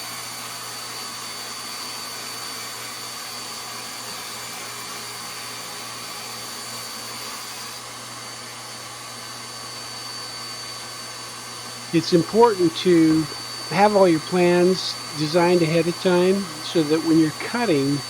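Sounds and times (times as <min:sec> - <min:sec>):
sawdust suction vacuum: 0:00.0 - 0:18.0
table saw running: 0:00.0 - 0:18.0
thin high whine: 0:11.8 - 0:18.0.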